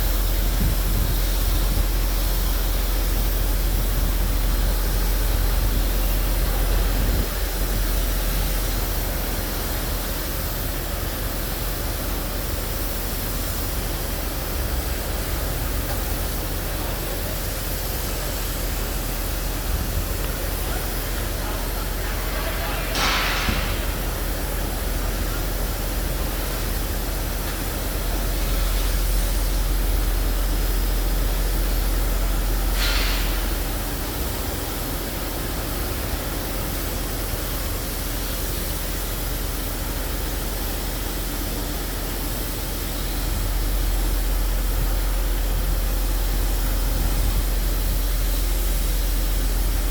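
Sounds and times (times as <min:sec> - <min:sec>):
heavy construction machinery running: 0:00.0 - 0:49.9
short hiss: 0:32.7 - 0:33.7.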